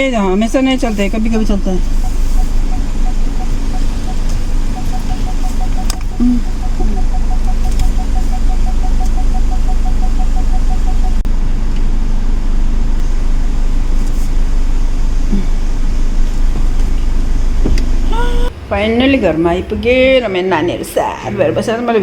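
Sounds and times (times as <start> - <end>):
car engine rumble inside cabin: 0.0 - 18.6
rapid electronic beeps: 0.2 - 11.2.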